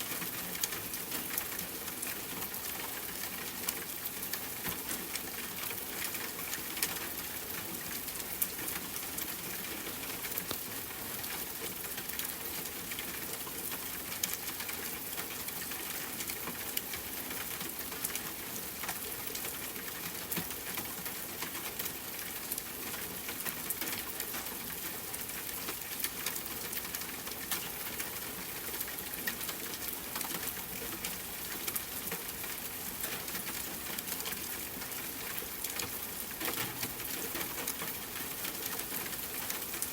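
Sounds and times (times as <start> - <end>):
rain falling on a tent: 0.0 - 39.9.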